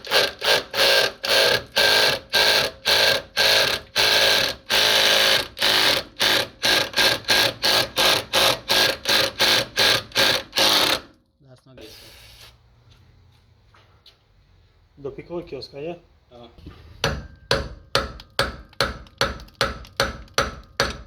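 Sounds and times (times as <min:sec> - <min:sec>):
tool working a rusted bolt: 0:16.6 - 0:21.0.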